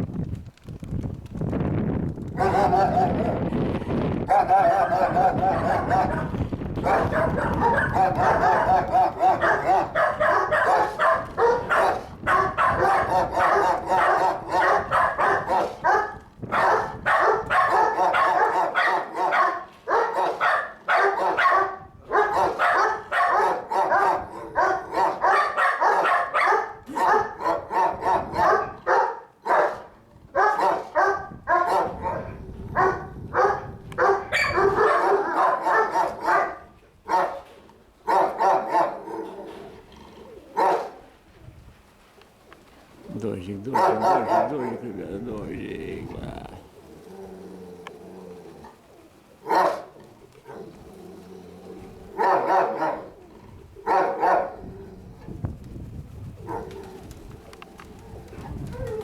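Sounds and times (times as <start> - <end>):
dogs barking: 2.4 - 3.4, 4.2 - 39.7, 40.4 - 41.1, 43.7 - 44.9, 49.4 - 50.9, 51.8 - 54.7, 56.4 - 57.0.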